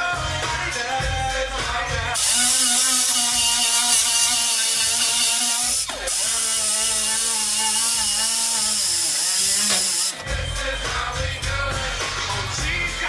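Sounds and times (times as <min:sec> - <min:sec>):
abrasive wheel cutting sheet metal: 0:02.2 - 0:10.4.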